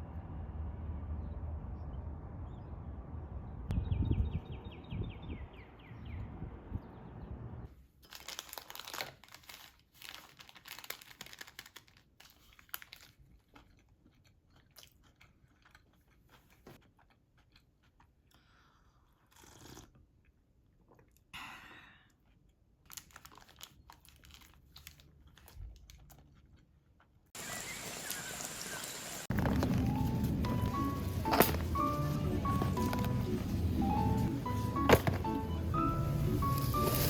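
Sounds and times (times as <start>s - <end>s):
crunching and crackling: 8.0s - 18.1s, 22.8s - 27.3s, 29.3s - 37.0s.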